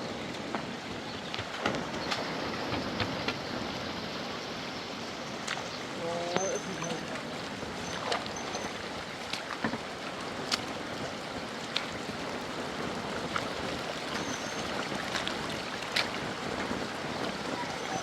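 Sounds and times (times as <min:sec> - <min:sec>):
rushing water: 0:00.0 - 0:18.0
sharp ticks and drips: 0:05.2 - 0:18.0.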